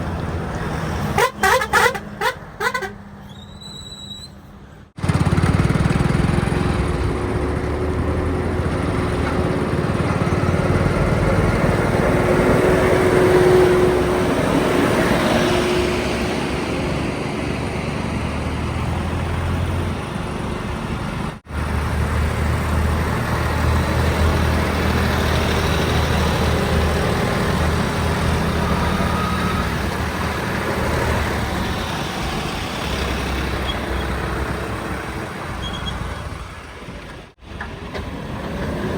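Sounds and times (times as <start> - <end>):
heavy diesel engine running: 4.7 - 35.6.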